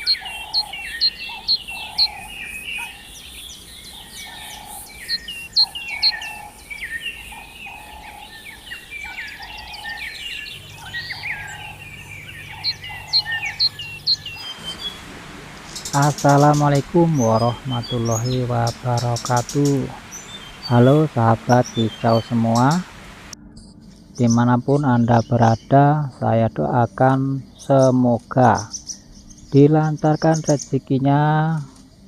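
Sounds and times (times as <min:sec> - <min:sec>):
songbirds chirping and trilling: 0:00.0 - 0:32.0
repeated low bird note: 0:09.4 - 0:23.4
low steady hum: 0:10.1 - 0:24.1.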